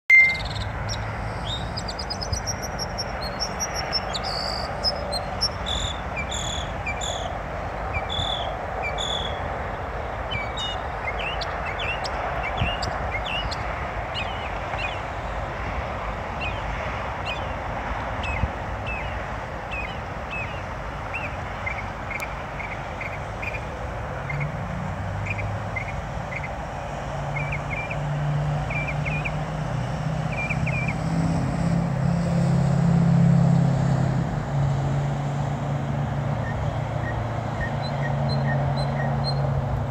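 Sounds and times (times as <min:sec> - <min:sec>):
songbird chirping: 0:00.1 - 0:09.4
vehicle engine: 0:00.1 - 0:19.9, 0:20.6 - 0:39.9
traffic hum: 0:00.1 - 0:39.9.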